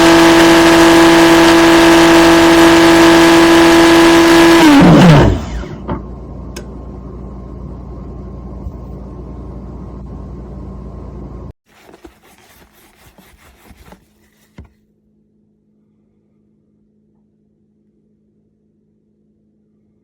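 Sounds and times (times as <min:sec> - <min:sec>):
grinder motor spinning down: 0:00.0 - 0:05.9.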